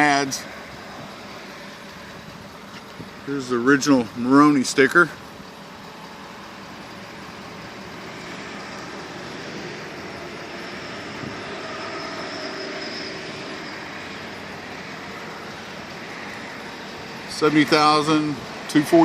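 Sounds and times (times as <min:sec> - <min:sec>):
vehicle passing by: 0:05.9 - 0:19.0.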